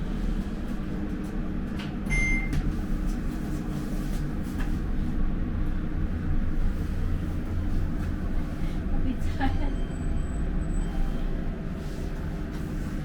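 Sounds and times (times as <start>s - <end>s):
short electronic beep: 2.1s - 2.5s.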